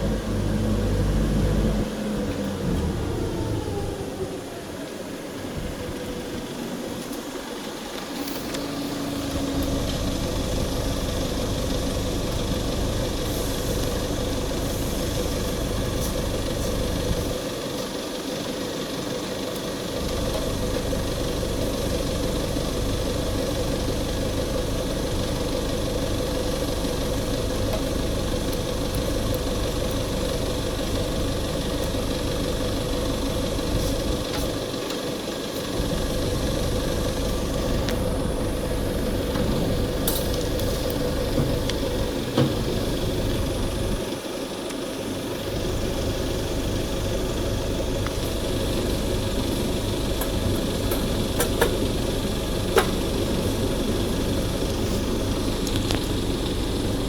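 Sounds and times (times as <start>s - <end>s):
deep rumble: 0.0s - 4.3s, 35.8s - 44.0s
machinery humming: 0.0s - 57.0s.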